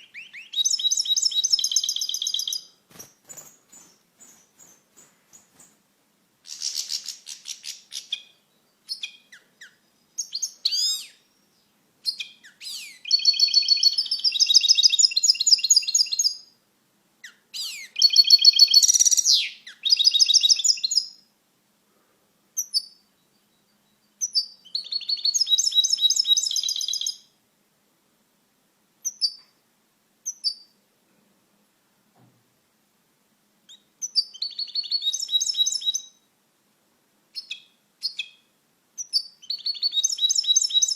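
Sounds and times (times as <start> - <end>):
goldfinch singing: 0.0 - 5.8, 6.5 - 16.5, 17.2 - 21.2, 22.6 - 27.3, 33.7 - 36.2, 37.4 - 40.9.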